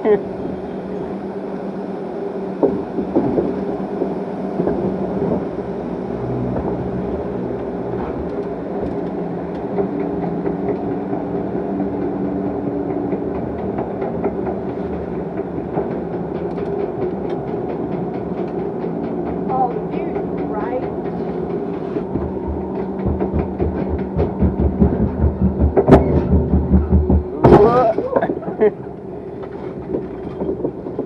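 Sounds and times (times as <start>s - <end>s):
ride machinery humming: 0.0s - 31.0s
regular lift clacking: 6.5s - 31.0s.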